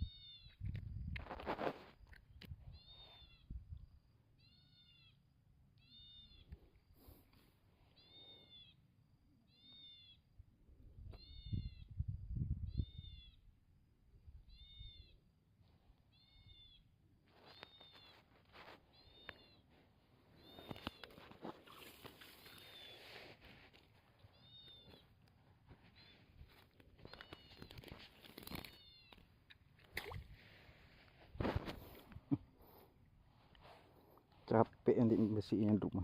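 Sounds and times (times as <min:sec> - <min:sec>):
distant animal calling: 0:04.4 - 0:06.5, 0:07.8 - 0:10.3, 0:16.1 - 0:16.8, 0:18.9 - 0:23.3, 0:24.1 - 0:25.2.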